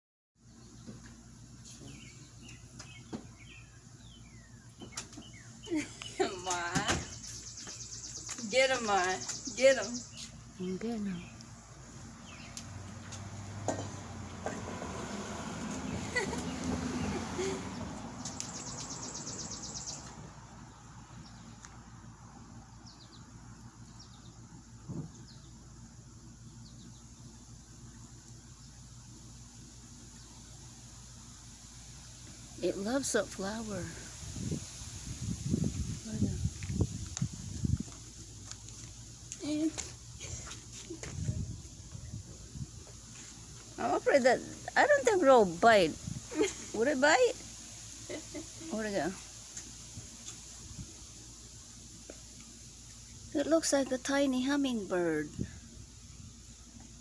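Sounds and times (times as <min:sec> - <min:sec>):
birds chirping: 0:00.4 - 0:57.0
small bird chirping: 0:00.5 - 0:13.2, 0:15.8 - 0:22.0
steady low hum: 0:15.8 - 0:57.0.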